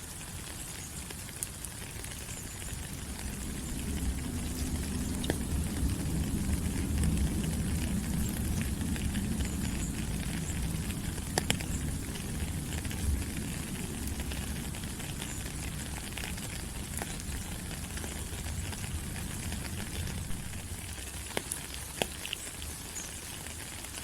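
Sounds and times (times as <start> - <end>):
rain pattering on leaves: 0.0 - 24.0
low rumble: 2.8 - 20.9
sharp drip clicks: 21.3 - 22.7.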